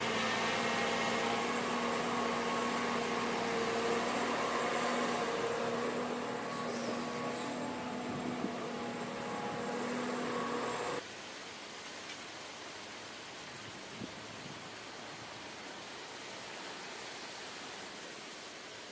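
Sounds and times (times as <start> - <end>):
constant hum: 0.0 - 11.0
diesel engine running: 0.0 - 11.0.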